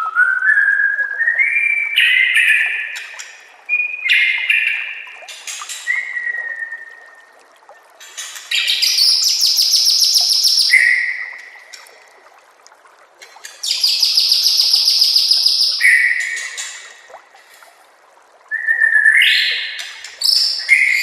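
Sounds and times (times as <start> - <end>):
bird whistling and trilling: 0.0 - 3.0, 8.6 - 11.3, 13.6 - 16.7, 18.5 - 21.0.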